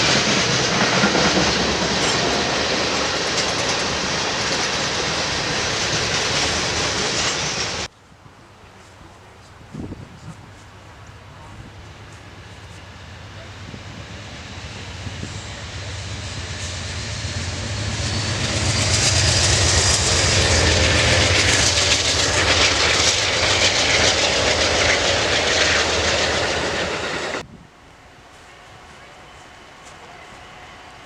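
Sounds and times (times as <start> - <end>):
train wheel noise: 0.0 - 8.0, 8.8 - 31.0
locomotive engine hum: 0.0 - 31.0.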